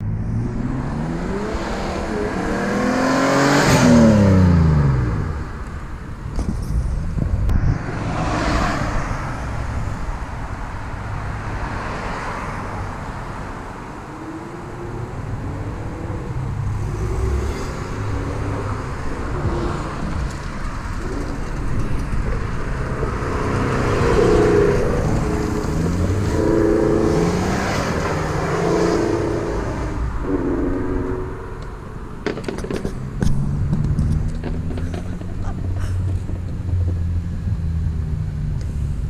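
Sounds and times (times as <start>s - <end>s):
car accelerating through gears: 0.0s - 5.5s.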